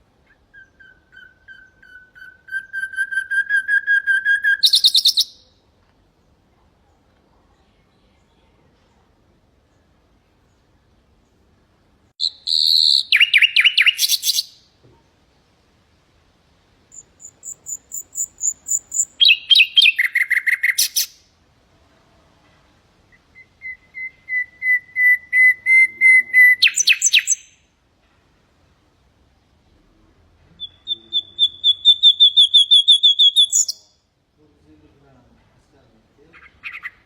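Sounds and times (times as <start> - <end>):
nightingale singing: 0.1 - 5.6, 12.2 - 14.8, 16.9 - 21.3, 23.1 - 27.8, 30.5 - 34.1, 36.3 - 37.0.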